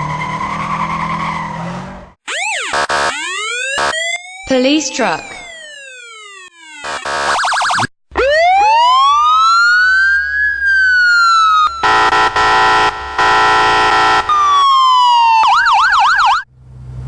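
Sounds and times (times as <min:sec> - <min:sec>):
siren yelp: 0:02.3 - 0:12.2
police siren wailing: 0:07.8 - 0:12.0, 0:14.3 - 0:16.4.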